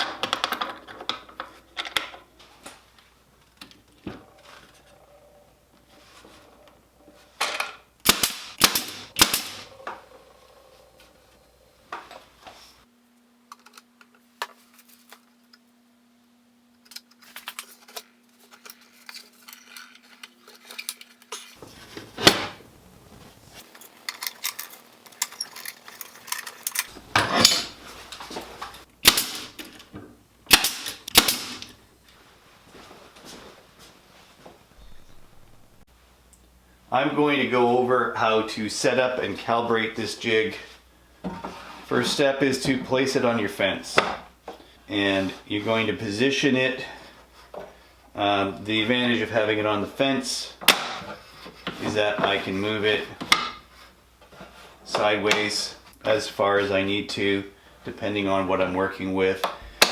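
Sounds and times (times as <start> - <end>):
wood and tools clacking: 0.0 - 12.8, 18.6 - 32.2
steady low hum: 0.0 - 12.9, 25.9 - 42.0.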